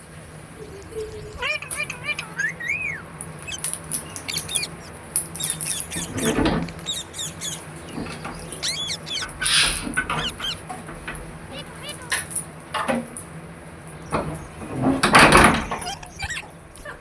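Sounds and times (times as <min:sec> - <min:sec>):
parrot squawks: 0:00.8 - 0:10.8, 0:11.4 - 0:12.4, 0:15.2 - 0:16.6
parrot chirping and whistling: 0:01.2 - 0:10.6, 0:11.5 - 0:12.2, 0:15.6 - 0:16.5.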